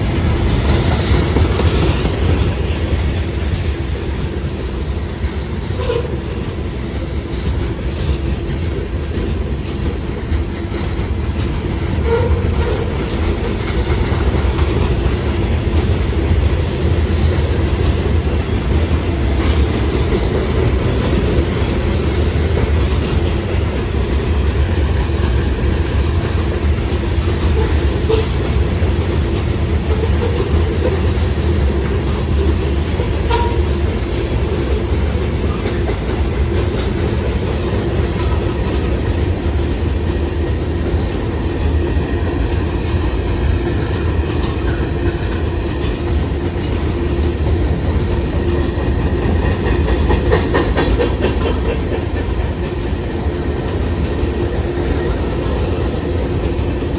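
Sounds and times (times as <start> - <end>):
train wheels rumbling on rails: 0.0 - 56.9.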